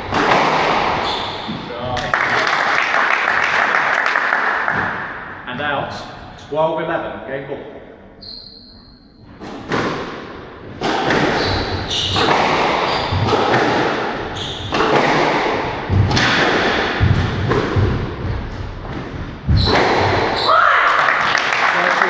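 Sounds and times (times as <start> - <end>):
squash ball thuds: 0.0 - 2.2, 9.3 - 21.1
short high squeaks: 8.2 - 9.2.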